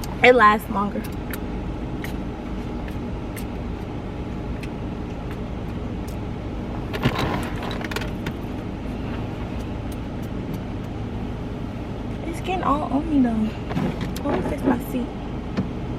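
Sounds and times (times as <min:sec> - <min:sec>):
car cabin hum: 0:00.0 - 0:15.9.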